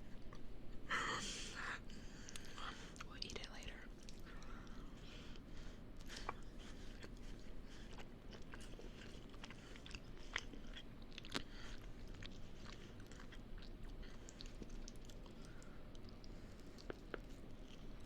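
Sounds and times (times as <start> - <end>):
person chewing food: 1.4 - 18.0.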